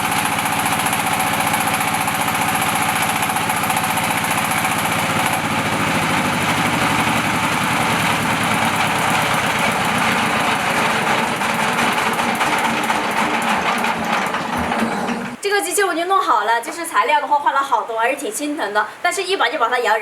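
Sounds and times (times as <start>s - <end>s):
engine knocking steadily: 0.0s - 15.4s.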